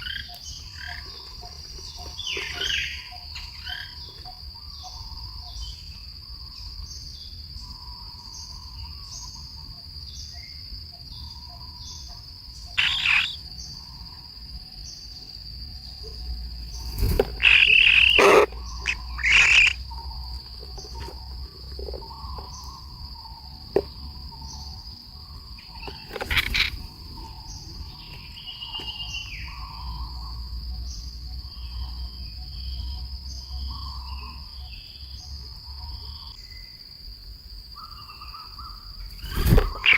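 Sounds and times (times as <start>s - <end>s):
crickets trilling: 0.0s - 39.9s
falling bird call: 12.8s - 13.4s, 16.8s - 19.8s, 25.7s - 26.9s, 39.1s - 39.9s
short bird calls: 12.8s - 13.4s, 16.9s - 20.0s, 38.2s - 39.9s.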